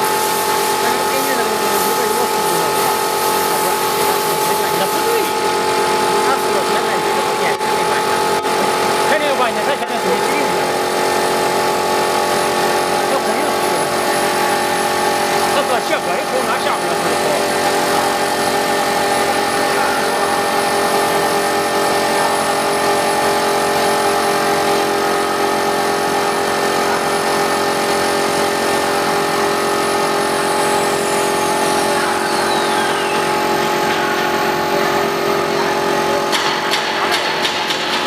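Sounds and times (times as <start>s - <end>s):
cutting noise: 0.0s - 23.4s
cnc spindle whine: 0.0s - 36.0s.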